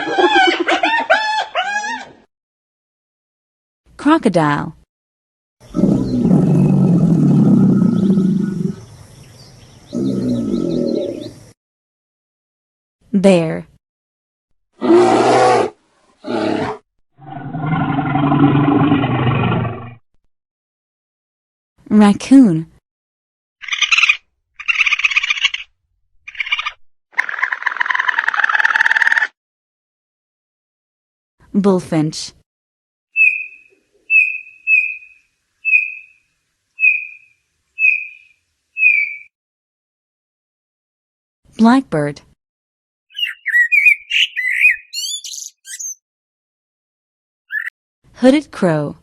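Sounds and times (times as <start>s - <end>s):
bullfinch whistled calls: 33.2s - 36.2s, 36.8s - 39.3s, 43.1s - 46.0s, 47.5s - 47.7s.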